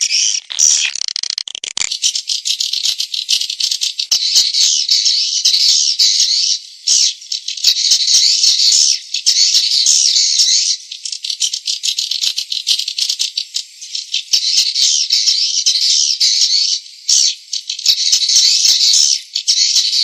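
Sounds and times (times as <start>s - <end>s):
fast clicks: 0.1s - 3.6s.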